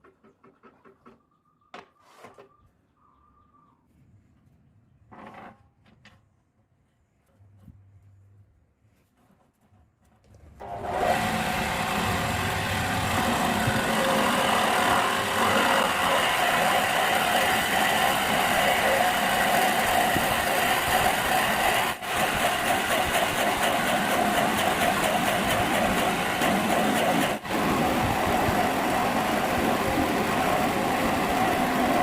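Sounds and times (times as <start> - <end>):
wood lathe running: 10.6 - 32.0.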